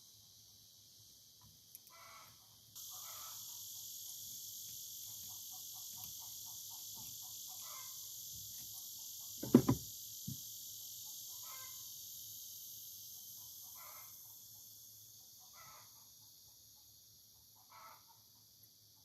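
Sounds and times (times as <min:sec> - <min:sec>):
steady high hiss: 0:00.0 - 0:15.4
loud clunk: 0:09.4 - 0:09.8
light knock: 0:09.4 - 0:10.4.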